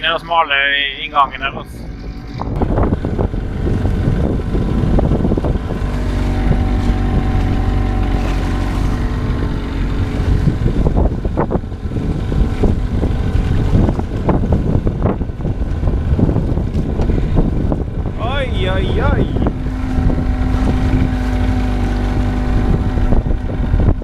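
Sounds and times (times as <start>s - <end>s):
boat engine running: 0.0s - 24.0s
wind buffeting microphone: 0.0s - 24.0s.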